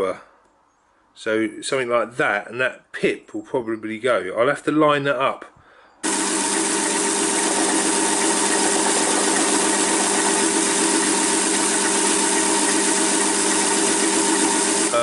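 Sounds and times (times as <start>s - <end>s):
metal lathe running: 6.0s - 15.0s.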